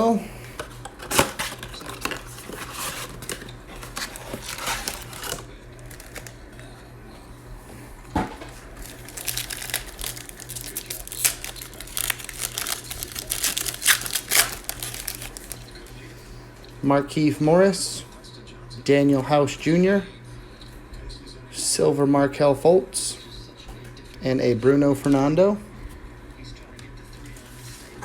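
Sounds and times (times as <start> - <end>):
cards rustling: 0.0 - 6.9, 7.7 - 16.8
plastic wrapper crinkling and tearing: 0.6 - 6.7, 8.6 - 16.0.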